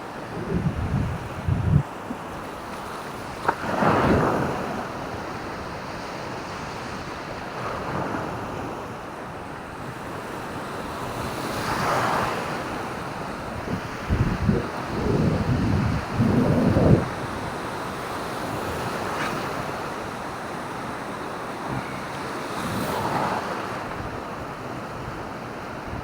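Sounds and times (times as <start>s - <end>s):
wind buffeting microphone: 0.0s - 2.6s, 12.2s - 26.0s
waves breaking on beach: 0.0s - 26.0s.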